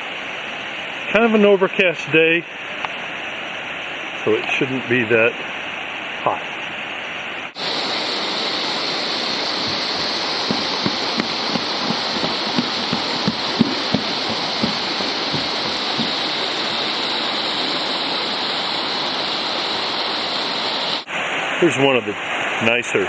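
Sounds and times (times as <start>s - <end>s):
stream rushing over rocks: 7.5s - 21.7s
soft low knocks: 9.6s - 16.8s.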